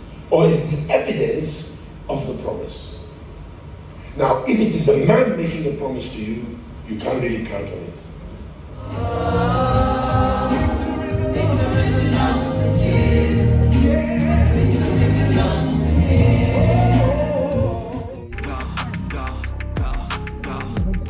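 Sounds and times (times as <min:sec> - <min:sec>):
gospel choir singing: 0:08.7 - 0:19.4
bass-heavy accompaniment: 0:08.8 - 0:21.0.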